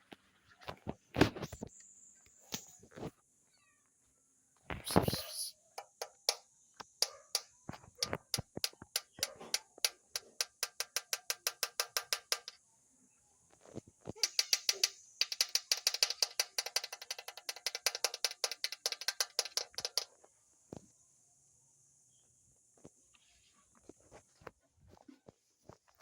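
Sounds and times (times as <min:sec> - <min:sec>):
rapid sharp clicks: 0:14.2 - 0:20.1.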